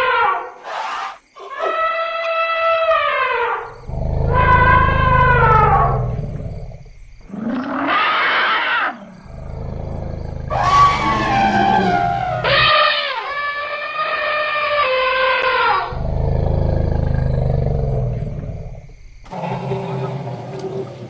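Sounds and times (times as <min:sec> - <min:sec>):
deep low rumbles: 0:03.7 - 0:07.3
elephants trumpeting: 0:10.5 - 0:13.4.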